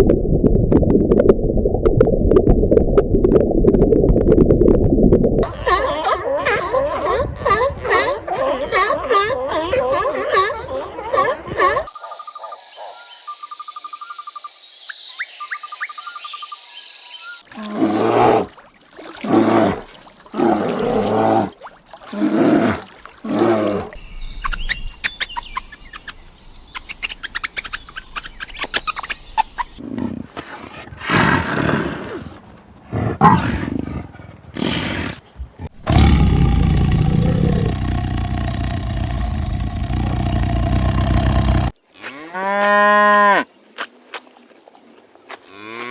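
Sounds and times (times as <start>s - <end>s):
birds chirping and trilling: 7.9s - 17.5s, 24.0s - 29.8s
big cat roaring: 17.6s - 18.5s, 32.9s - 41.8s.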